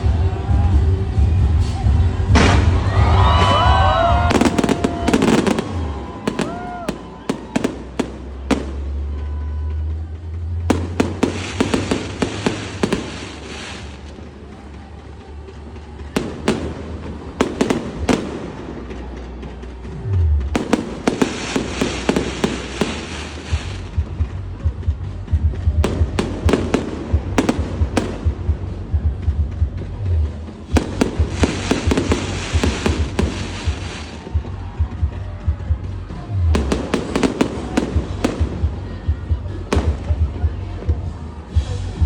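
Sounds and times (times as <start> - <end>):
fireworks bangs: 0.0 - 42.0
fireworks crackling fizz: 1.6 - 25.1, 30.2 - 34.7.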